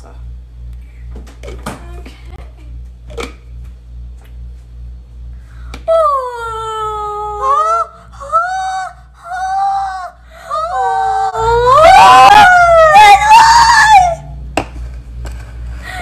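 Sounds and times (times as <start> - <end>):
person wailing and screaming: 5.9 - 14.3.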